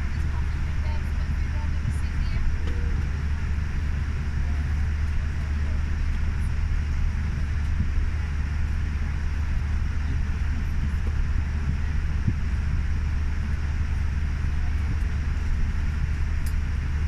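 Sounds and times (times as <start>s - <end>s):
aircraft cabin rumble: 0.0s - 17.0s.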